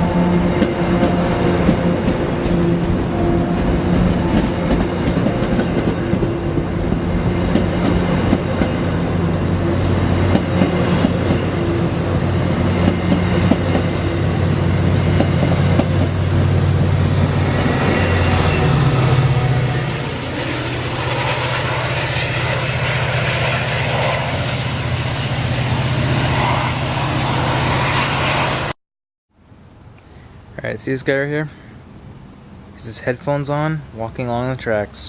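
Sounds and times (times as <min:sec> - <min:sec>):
diesel train engine drone: 0:00.0 - 0:28.8
wheels clacking over rail joints: 0:09.6 - 0:20.6.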